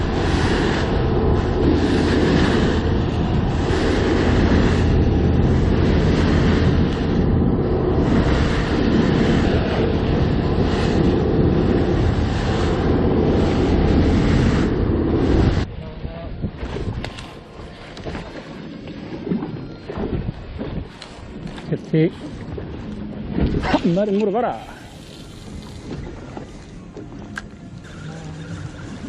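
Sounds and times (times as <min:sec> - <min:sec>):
boat engine drone: 0:00.0 - 0:29.0
rushing wind and water: 0:00.0 - 0:29.0
wind buffeting microphone: 0:00.0 - 0:29.0.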